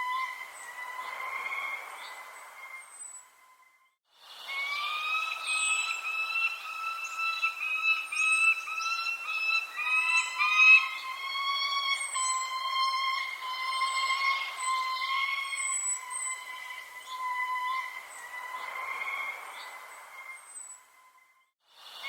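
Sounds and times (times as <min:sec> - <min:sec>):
birds chirping: 0:00.0 - 0:21.5
loud pitched whistling tone: 0:04.5 - 0:18.9.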